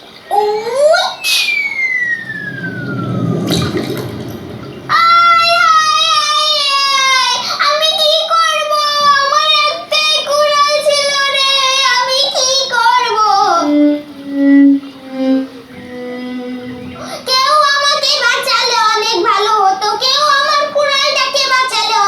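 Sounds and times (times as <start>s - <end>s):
child singing: 4.9s - 22.0s.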